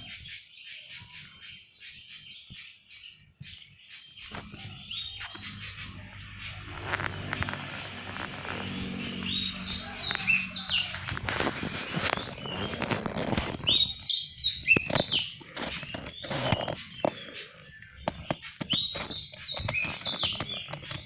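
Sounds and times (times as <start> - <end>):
songbird chirping and whistling: 0.0 - 7.0, 11.7 - 21.0.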